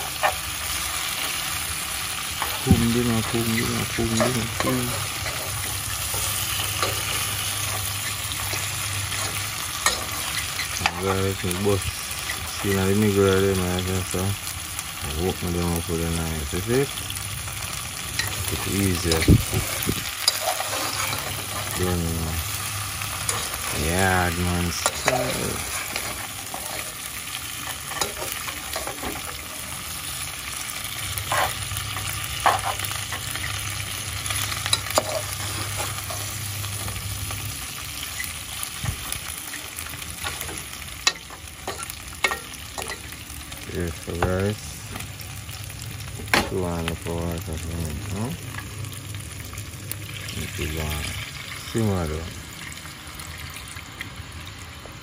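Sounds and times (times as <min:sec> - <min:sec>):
meat sizzling in oil: 0:00.0 - 0:55.0
metal spatula scraping pot: 0:18.2 - 0:22.0, 0:22.6 - 0:23.9, 0:24.7 - 0:29.7, 0:31.1 - 0:33.6, 0:34.3 - 0:37.0.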